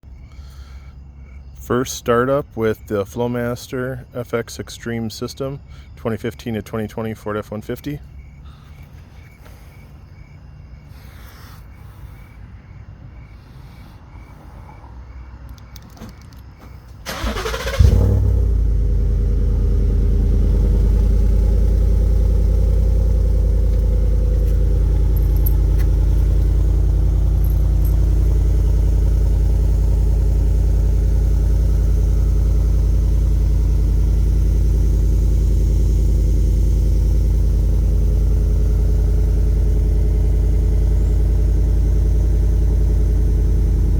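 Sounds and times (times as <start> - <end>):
truck engine idling: 0.0 - 43.9
starter cranking: 15.5 - 18.5, 19.5 - 43.9.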